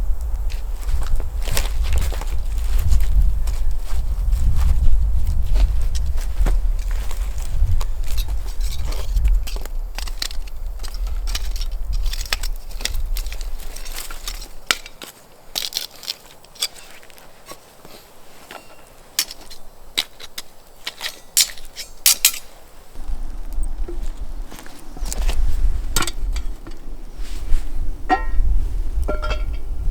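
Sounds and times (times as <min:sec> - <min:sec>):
dry leaves and twigs crunching: 0:00.2 - 0:29.7
low rumble of movement: 0:22.9 - 0:29.9.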